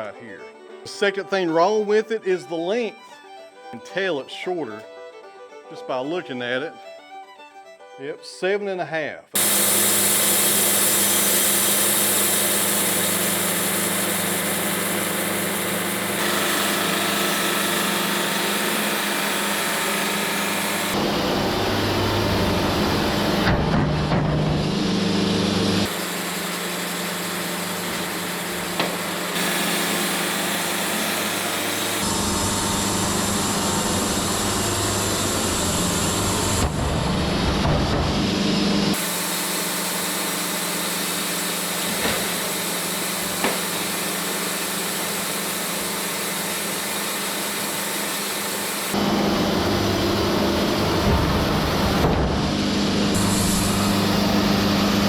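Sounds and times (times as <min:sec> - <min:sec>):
saw blade cutting through log: 0:09.4 - 0:21.0, 0:25.8 - 0:36.7, 0:38.9 - 0:49.0
band sawmill engine droning: 0:09.4 - 0:55.0.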